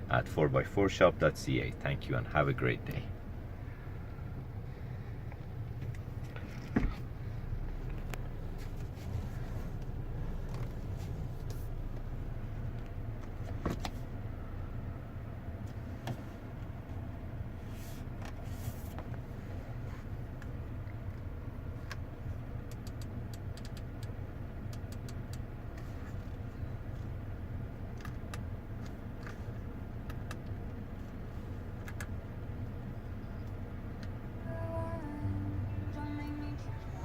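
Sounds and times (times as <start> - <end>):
car engine rumbling: 0.0 - 37.0.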